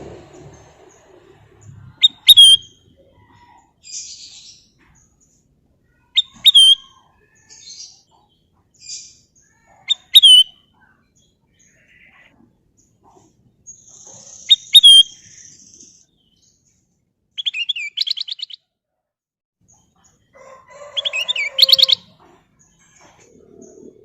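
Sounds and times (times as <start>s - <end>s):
bird whistling and chattering: 1.9s - 2.8s, 6.1s - 7.1s, 9.8s - 10.6s, 13.9s - 15.8s, 17.4s - 18.6s, 21.0s - 22.1s.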